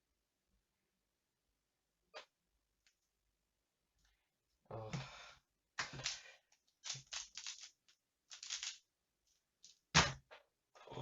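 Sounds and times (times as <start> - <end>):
plastic puzzle clicking: 6.8 - 8.8.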